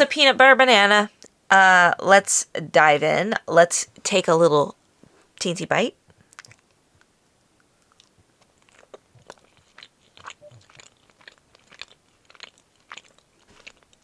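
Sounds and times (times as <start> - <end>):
person chewing chocolate: 6.2 - 14.0.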